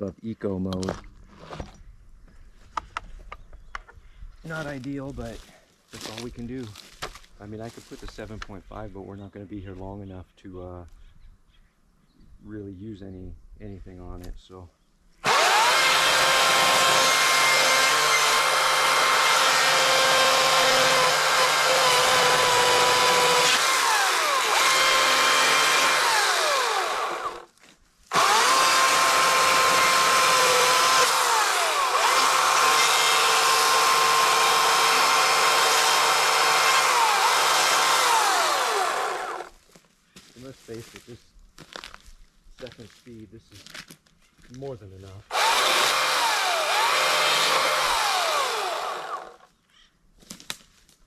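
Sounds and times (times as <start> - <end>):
electric chainsaw cutting wood: 15.2 - 27.5, 28.1 - 39.5, 45.3 - 49.5.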